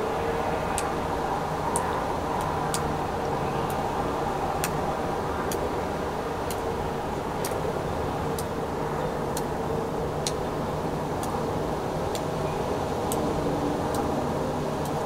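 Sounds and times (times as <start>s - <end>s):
sharp high ticks: 3.6s - 3.8s, 6.4s - 6.7s, 7.4s - 7.6s, 10.2s - 10.4s, 11.2s - 11.4s, 13.0s - 13.3s.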